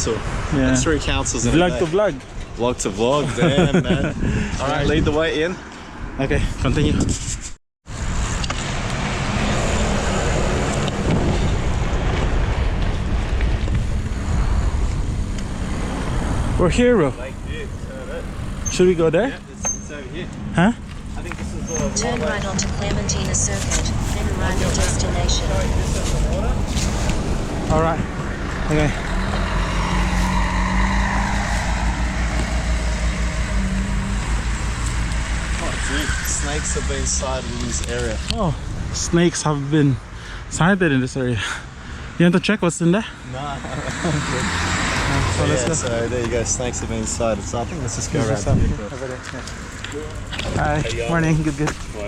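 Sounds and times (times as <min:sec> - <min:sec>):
wind buffeting microphone: 0:02.3 - 0:08.2, 0:09.2 - 0:18.8, 0:48.4 - 0:49.0
vehicle engine hum: 0:07.9 - 0:40.5, 0:42.8 - 0:52.0.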